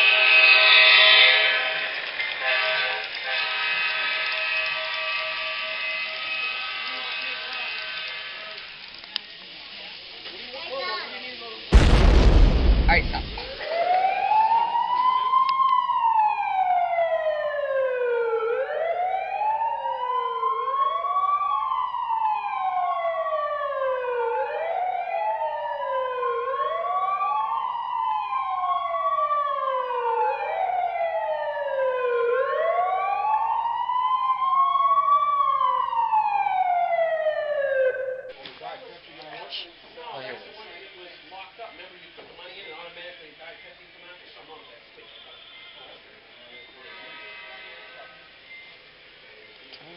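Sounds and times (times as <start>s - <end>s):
wailing emergency sirens: 0.0s - 8.9s, 11.8s - 38.4s.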